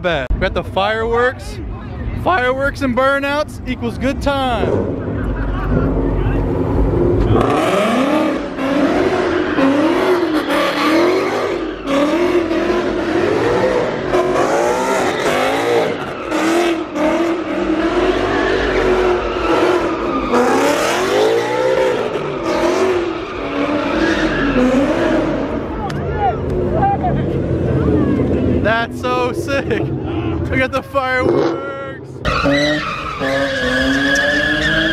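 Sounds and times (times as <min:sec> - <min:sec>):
car engine revving hard: 0:04.6 - 0:25.7.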